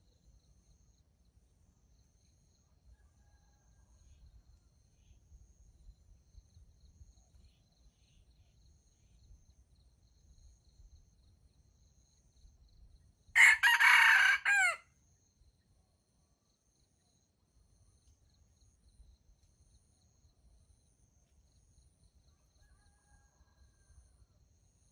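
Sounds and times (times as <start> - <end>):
rooster crowing: 13.4 - 14.8.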